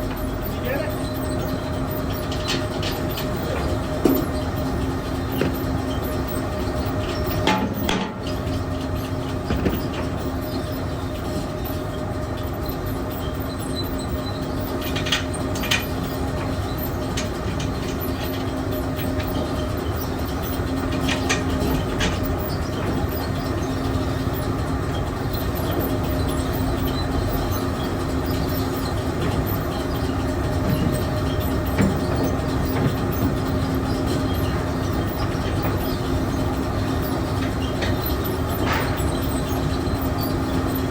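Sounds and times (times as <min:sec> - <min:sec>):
machinery rumbling with low hum: 0:00.0 - 0:40.9.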